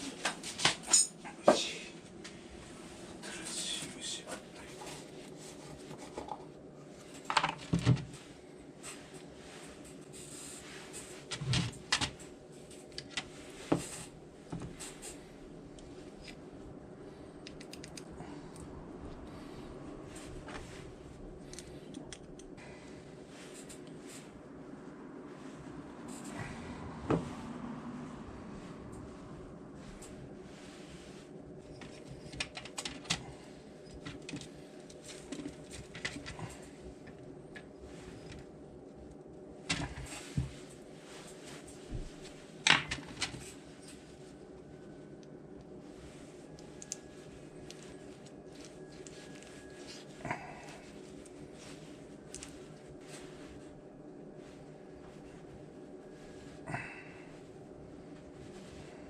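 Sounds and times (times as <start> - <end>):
steady low hum: 0.0 - 59.0
light clicks and knocks of tools: 17.4 - 18.7, 21.4 - 22.6, 46.6 - 47.1.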